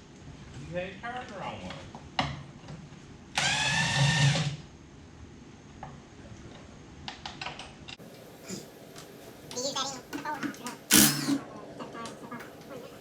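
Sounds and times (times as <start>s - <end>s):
power drill running: 3.4s - 4.6s, 10.9s - 11.4s.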